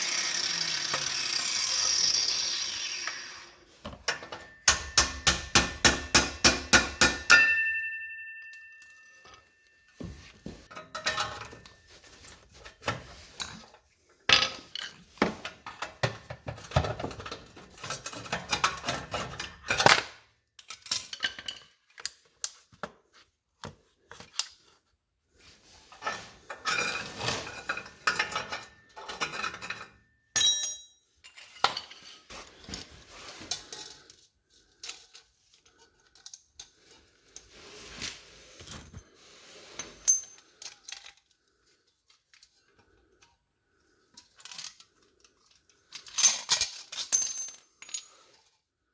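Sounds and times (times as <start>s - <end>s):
metal tools clinking: 3.9s - 12.1s, 26.0s - 32.3s, 39.7s - 41.2s, 44.2s - 48.5s
ringing metallic ping: 6.9s - 9.8s.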